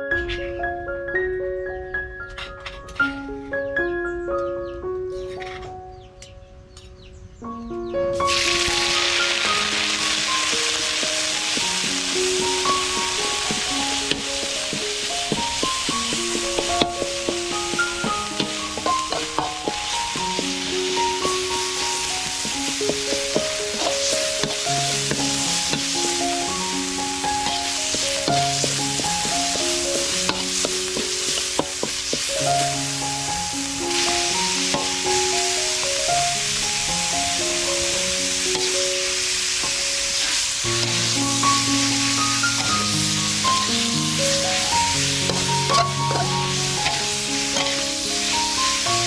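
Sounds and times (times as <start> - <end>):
simple background melody: 0.0 - 49.0
food sizzling in a pan: 8.2 - 49.0
spatula scraping a pan: 10.4 - 32.4, 44.6 - 48.4.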